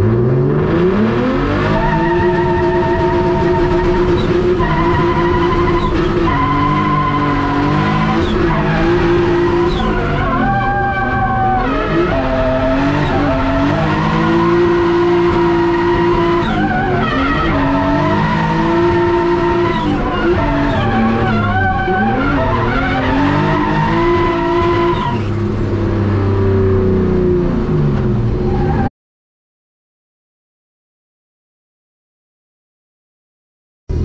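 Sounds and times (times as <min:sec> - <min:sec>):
tyres skidding: 0:00.0 - 0:27.0
car engine at high revs: 0:00.0 - 0:28.9.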